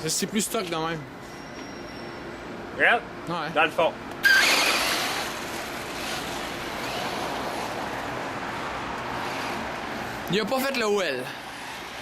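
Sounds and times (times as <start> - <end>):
electric rc truck motor whirr: 4.2 - 8.0, 9.2 - 9.7, 11.5 - 12.0.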